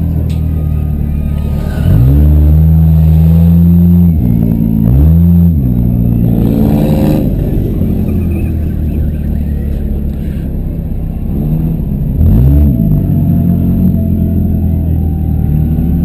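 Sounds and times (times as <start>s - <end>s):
car engine revving hard: 1.4s - 8.4s, 11.4s - 14.5s.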